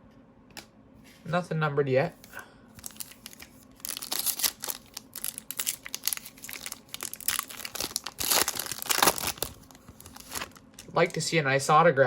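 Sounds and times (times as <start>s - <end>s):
foil wrapper crinkling and tearing: 2.8s - 11.2s.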